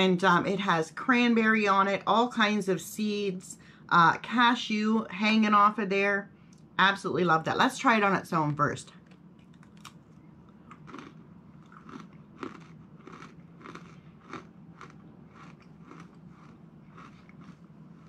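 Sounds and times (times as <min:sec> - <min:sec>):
crunchy chewing of cracker: 0:09.0 - 0:18.0.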